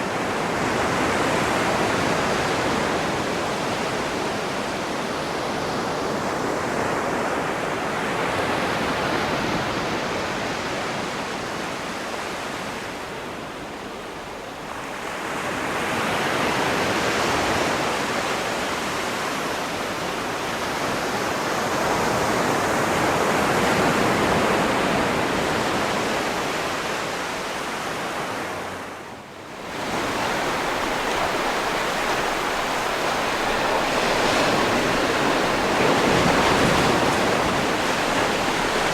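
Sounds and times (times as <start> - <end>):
sea waves washing onto shore: 29.5 - 38.9.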